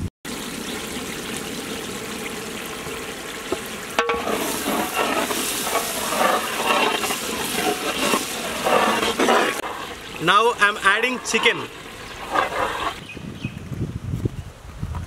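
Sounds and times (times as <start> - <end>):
masala sizzling in oil: 0.3 - 13.1
metal ladle scraping a pot: 4.0 - 13.0.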